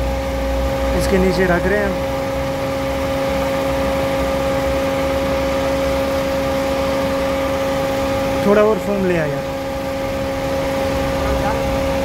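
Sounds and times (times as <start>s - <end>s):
car engine idling: 0.0s - 12.0s
radiator fan running: 0.0s - 12.0s.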